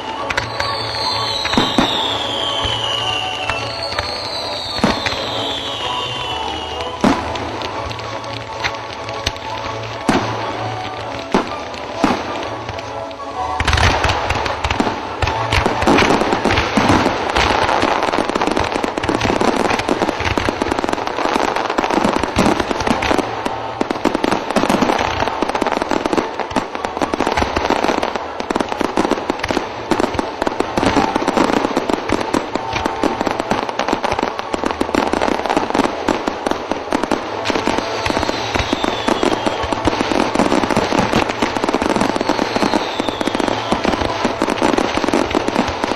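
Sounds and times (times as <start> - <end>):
falling firework whistles: 0.0 - 7.5, 37.4 - 45.9
fireworks bangs and crackling: 0.0 - 45.9.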